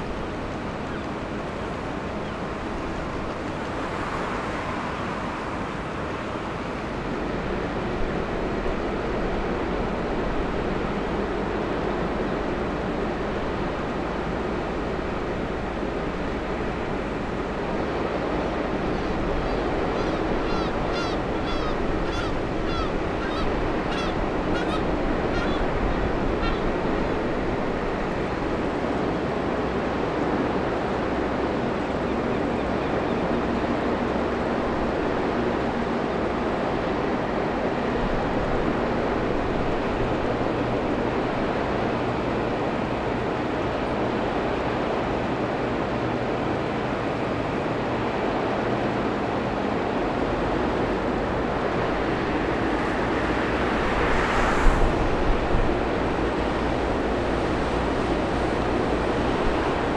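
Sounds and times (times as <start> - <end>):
water and engine rumble: 0.0 - 59.9
bird honking calls: 18.9 - 26.8.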